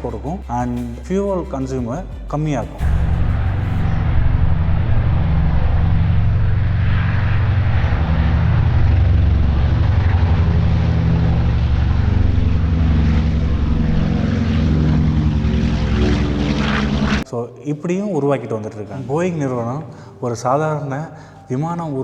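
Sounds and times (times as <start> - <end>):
propeller aircraft engine droning: 2.8 - 17.3.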